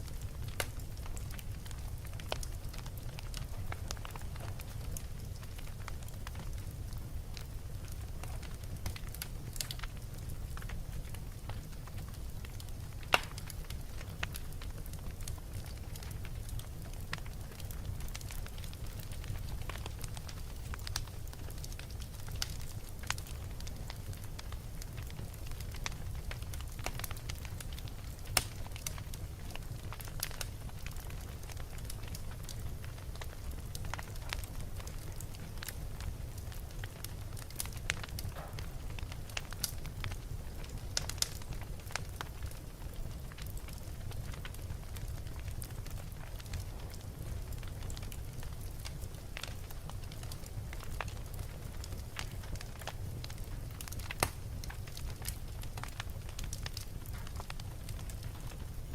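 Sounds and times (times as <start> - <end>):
fire low rumble: 0.0 - 58.9
wood fire crackling and popping: 0.0 - 58.9.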